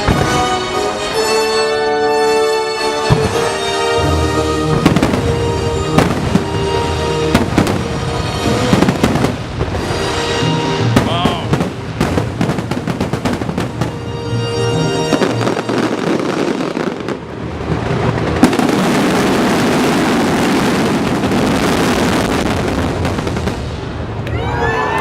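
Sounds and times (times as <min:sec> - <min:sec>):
fireworks exploding and crackling: 0:00.0 - 0:01.3, 0:03.0 - 0:24.9
music: 0:00.0 - 0:17.0.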